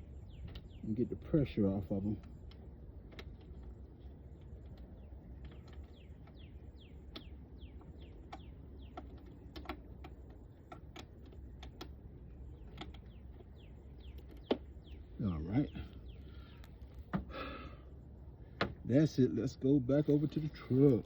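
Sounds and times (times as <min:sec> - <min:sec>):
small birds chirping: 0:00.0 - 0:21.0
light clicks and taps of handling: 0:02.0 - 0:15.0.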